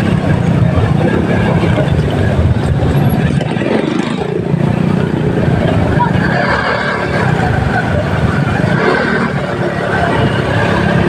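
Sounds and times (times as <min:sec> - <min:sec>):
wind rumble on microphone: 0:00.0 - 0:06.4
motorcycle engine running: 0:00.0 - 0:11.0.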